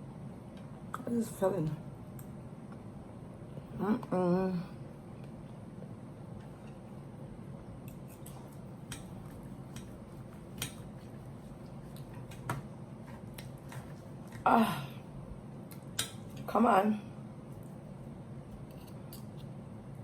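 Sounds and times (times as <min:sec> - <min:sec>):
steady low hum: 0:00.0 - 0:20.0
chewing: 0:07.8 - 0:14.4
cutlery clicks and taps: 0:16.0 - 0:16.2.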